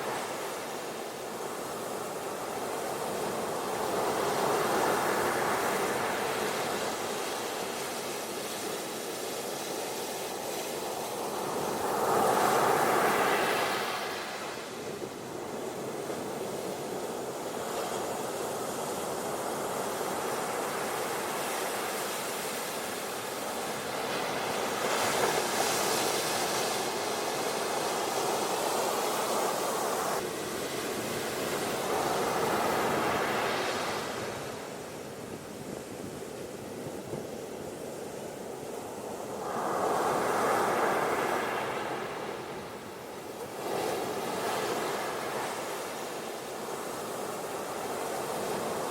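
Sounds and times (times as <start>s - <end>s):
ocean waves breaking on beach: 0.0s - 48.9s.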